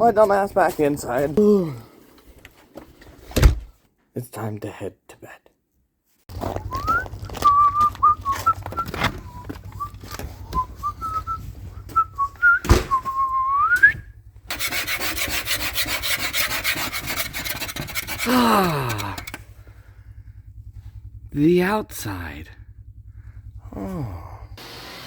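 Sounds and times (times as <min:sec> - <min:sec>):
person whistling a tune: 0:06.6 - 0:14.1
rhythmic scratchy rubbing: 0:14.5 - 0:19.2.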